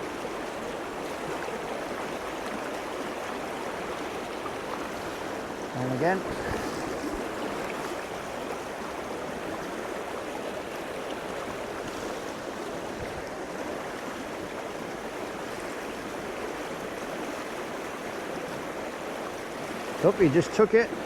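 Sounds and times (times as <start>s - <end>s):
stream flowing over rocks: 0.0s - 21.0s.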